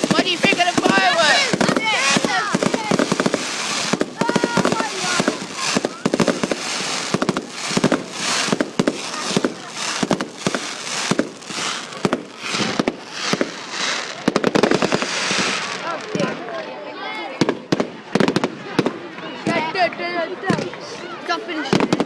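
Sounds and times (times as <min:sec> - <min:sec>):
crackling hiss of fireworks: 0:00.0 - 0:16.3
fireworks bangs and pops: 0:00.0 - 0:16.7, 0:17.3 - 0:20.9, 0:21.6 - 0:22.0.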